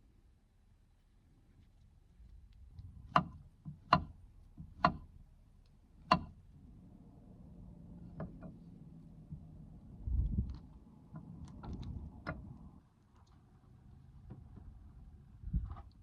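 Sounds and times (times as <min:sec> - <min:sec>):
sharp knocks: 0:06.1 - 0:06.3.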